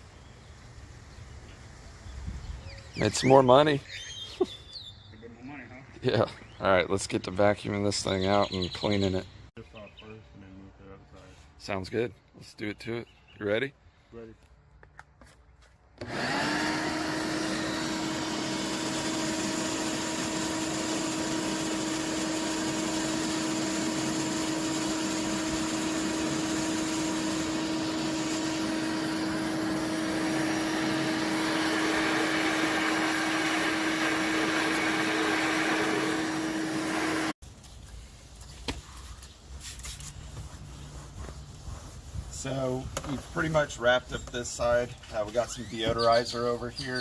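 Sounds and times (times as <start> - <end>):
vacuum cleaner whining: 16.0 - 37.4.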